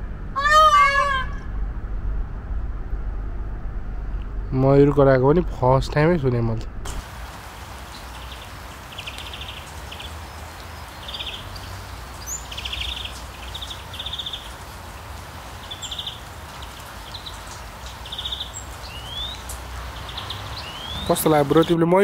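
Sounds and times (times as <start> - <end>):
low rumble: 0.0 - 7.1
buzzy bird calls: 7.2 - 21.8.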